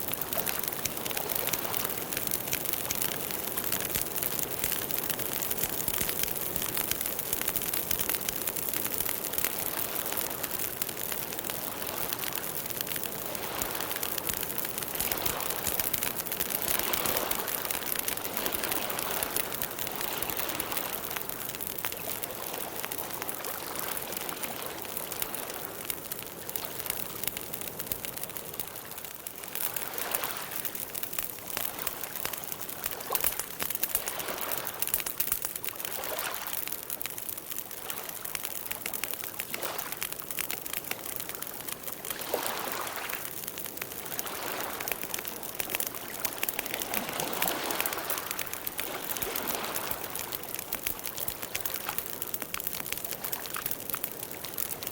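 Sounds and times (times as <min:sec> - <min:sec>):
campfire crackling and hissing: 0:00.0 - 0:54.9.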